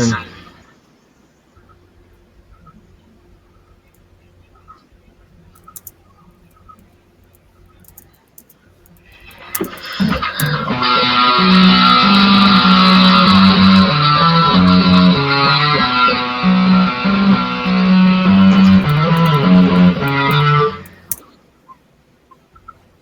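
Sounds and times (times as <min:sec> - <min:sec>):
guitar music with bass line: 0:09.4 - 0:21.2.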